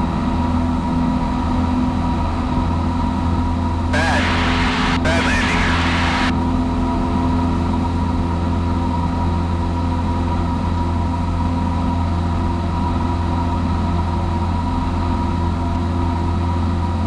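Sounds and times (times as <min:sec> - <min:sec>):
airplane engine drone in cabin: 0:04.0 - 0:06.3.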